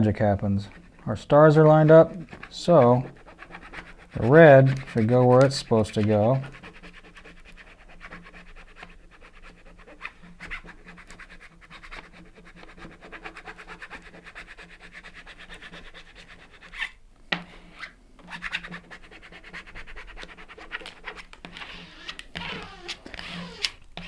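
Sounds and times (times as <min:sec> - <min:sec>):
scratchy rubbing of decal backing: 0:00.0 - 0:24.0.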